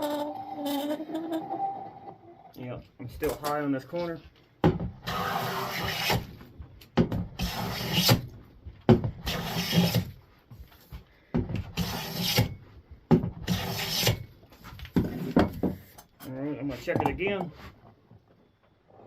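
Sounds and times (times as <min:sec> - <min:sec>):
hand plane shaving wood: 0:05.0 - 0:06.3, 0:07.4 - 0:08.2, 0:09.2 - 0:10.2, 0:11.7 - 0:12.5, 0:13.4 - 0:14.2.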